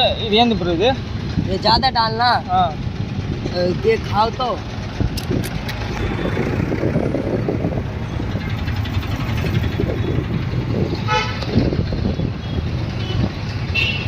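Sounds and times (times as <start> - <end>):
street traffic rumble: 0.0 - 14.0
vehicle horn: 11.0 - 11.7, 12.4 - 14.0.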